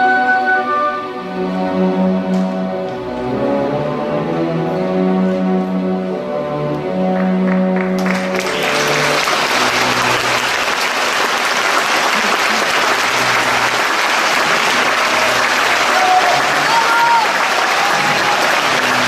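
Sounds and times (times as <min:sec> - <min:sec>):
audience applause: 0:07.2 - 0:19.0.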